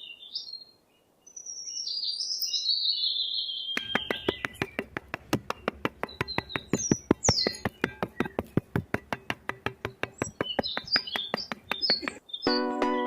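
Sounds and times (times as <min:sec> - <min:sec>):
birds chirping: 0:00.0 - 0:12.6
fast even clicking: 0:03.8 - 0:12.2
music: 0:12.5 - 0:13.0.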